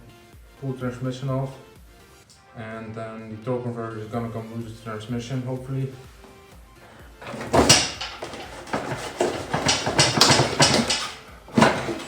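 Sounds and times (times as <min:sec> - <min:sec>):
mechanical clatter bursts: 0:07.2 - 0:12.0.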